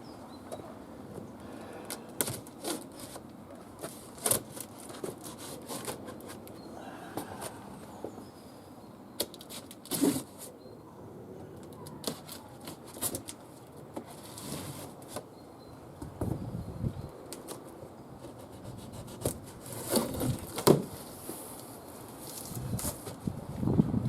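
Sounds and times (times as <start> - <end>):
cardboard packing rustling: 9.4 - 10.5, 18.4 - 23.2.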